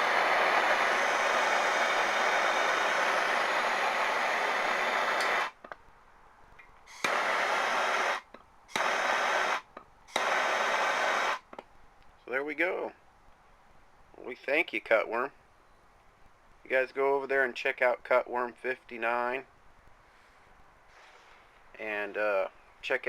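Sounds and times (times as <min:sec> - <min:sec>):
torch flame hissing: 0:00.0 - 0:05.6, 0:06.9 - 0:11.5.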